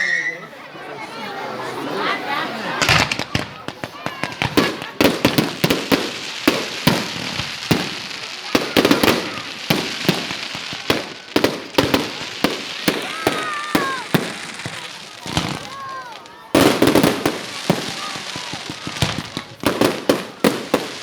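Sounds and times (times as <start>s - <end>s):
falling whistle tones: 0.0s - 0.6s
fireworks bangs and cracks: 2.8s - 21.0s
fireworks crackle: 2.8s - 21.0s.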